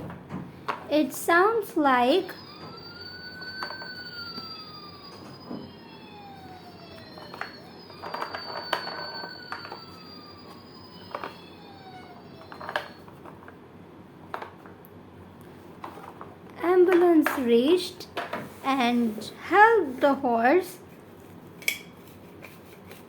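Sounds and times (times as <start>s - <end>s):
toy siren wailing: 1.9s - 13.3s
thin high tone: 2.0s - 13.0s.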